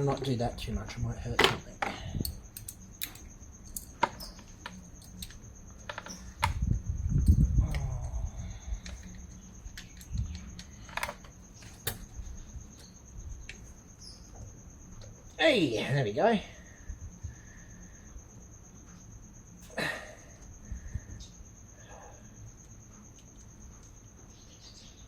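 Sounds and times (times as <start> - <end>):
spanner clicking on metal: 2.2 - 5.4.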